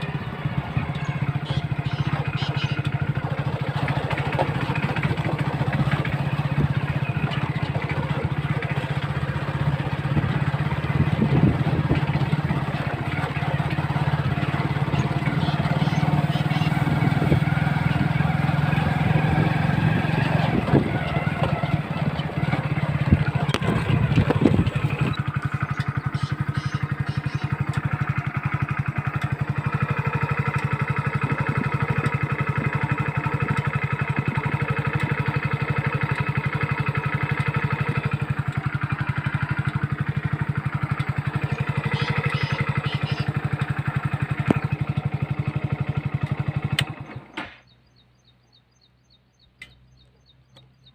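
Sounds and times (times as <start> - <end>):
motorcycle engine idling: 0.0 - 50.9
clicks: 49.6 - 49.8.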